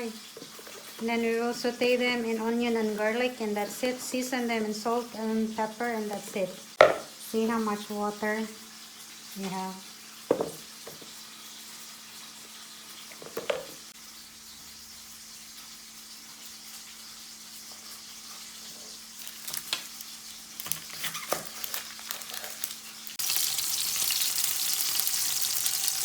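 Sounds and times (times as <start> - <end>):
chicken sizzling in oil: 0.0 - 26.0
knock: 6.8 - 7.1, 10.3 - 11.0
oil popping: 13.2 - 13.9.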